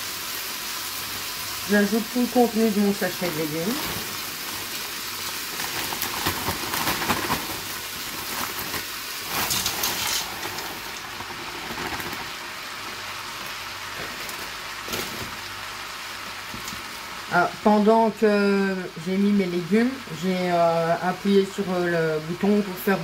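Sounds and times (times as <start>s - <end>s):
frying sizzling hiss: 0.0s - 23.0s
plastic bag rustling: 1.9s - 17.0s
vegetable pieces falling in pot: 3.6s - 15.6s.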